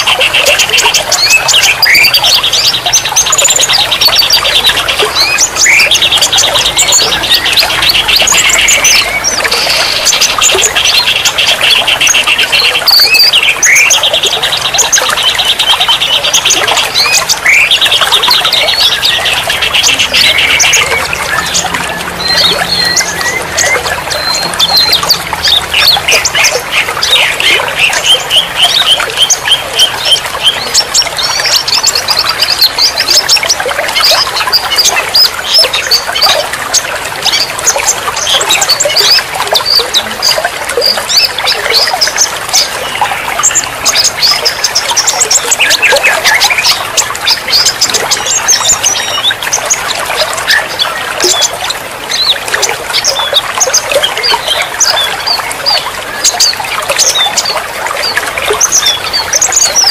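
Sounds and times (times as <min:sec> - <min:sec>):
songbirds chirping: 0:00.0 - 0:59.9
trickling water: 0:00.0 - 0:59.9.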